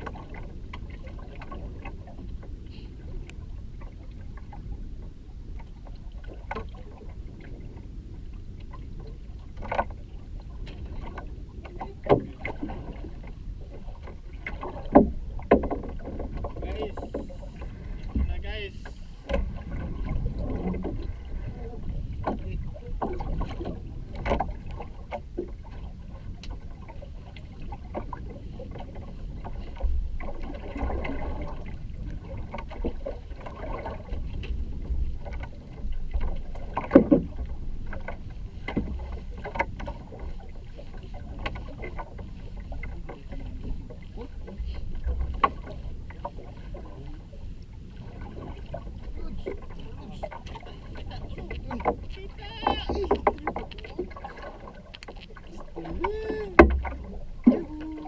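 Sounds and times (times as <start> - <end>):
water sloshing and splashing: 0.0 - 58.0
steady low rumble: 37.2 - 58.0.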